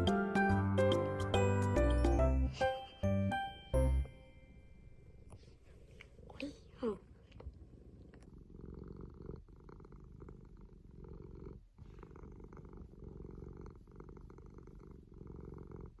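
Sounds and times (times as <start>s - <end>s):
cat purring: 4.0s - 16.0s.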